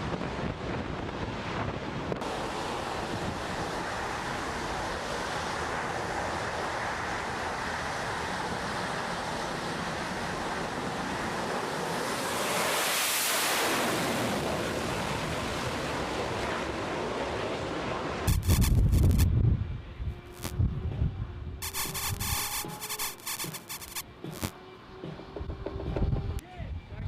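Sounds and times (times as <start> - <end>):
steady rushing noise: 18.3 - 19.3, 20.3 - 20.5, 21.6 - 24.5.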